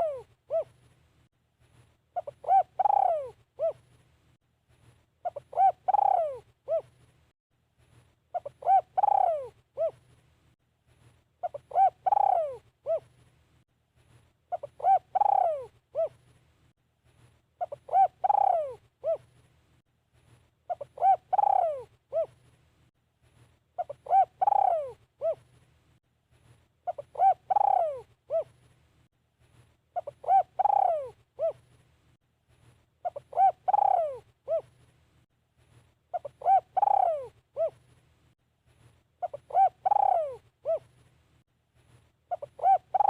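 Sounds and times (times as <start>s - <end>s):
dove cooing: 0.0s - 0.8s, 2.2s - 3.9s, 5.2s - 7.0s, 8.3s - 10.0s, 11.4s - 13.1s, 14.5s - 16.2s, 17.6s - 19.3s, 20.7s - 22.4s, 23.8s - 25.5s, 26.8s - 28.6s, 30.0s - 31.6s, 33.0s - 34.8s, 36.1s - 37.8s, 39.2s - 40.9s, 42.3s - 43.0s.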